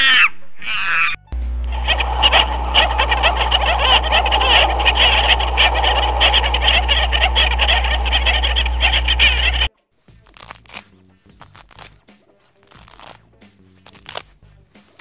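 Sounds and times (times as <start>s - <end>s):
steady low hum: 1.3s - 9.7s
frogs croaking and chirping: 1.8s - 9.7s.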